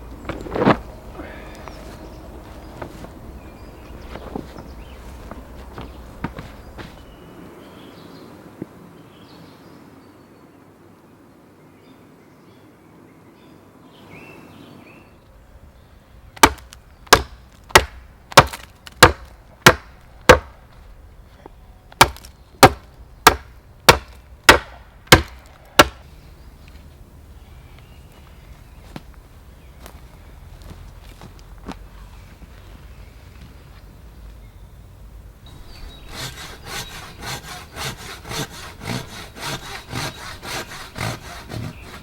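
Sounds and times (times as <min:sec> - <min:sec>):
faint rustling: 0:00.1 - 0:07.2
wood being chopped: 0:16.4 - 0:20.6, 0:21.9 - 0:26.0, 0:36.1 - 0:42.0.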